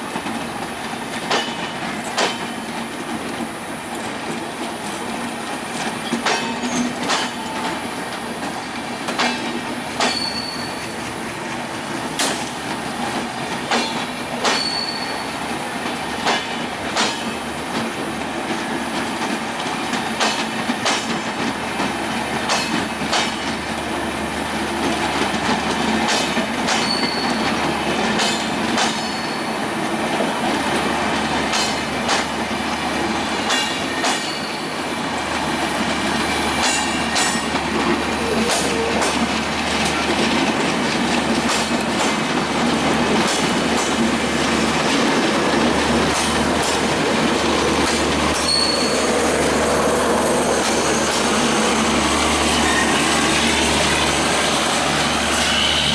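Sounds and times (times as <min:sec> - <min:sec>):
train rolling rumble: 0:00.0 - 0:55.9
high wheel squeals: 0:10.0 - 0:11.2, 0:14.5 - 0:15.4, 0:26.8 - 0:27.6, 0:47.2 - 0:55.9.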